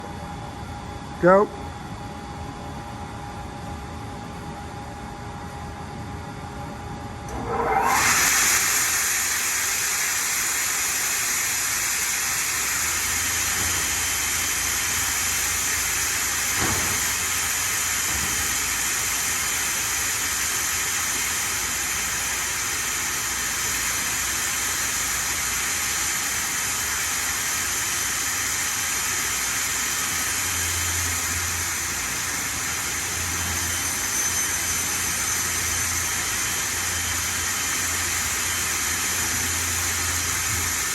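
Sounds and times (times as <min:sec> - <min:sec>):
router spindle whining: 0:07.2 - 0:11.4.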